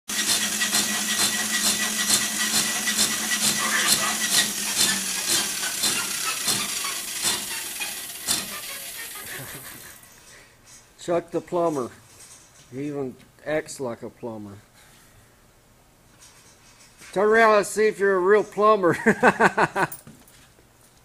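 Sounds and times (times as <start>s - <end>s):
machine humming and hissing: 0.1s - 10.0s.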